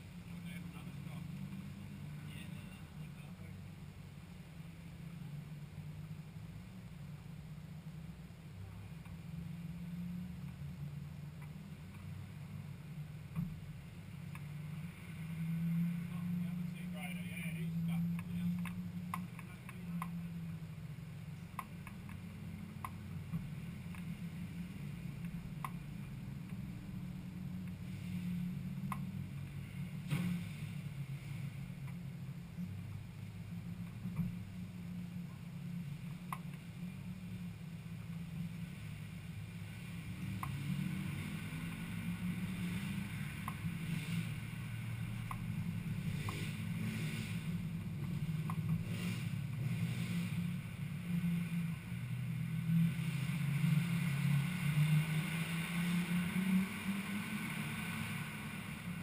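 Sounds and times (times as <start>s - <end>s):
light ticks: 9.0s - 9.2s, 14.3s - 14.5s, 18.0s - 20.2s, 21.4s - 24.2s, 25.2s - 26.6s, 27.6s - 27.8s, 28.8s - 29.6s, 36.2s - 36.6s, 43.4s - 43.7s, 45.2s - 45.5s, 48.0s - 48.8s.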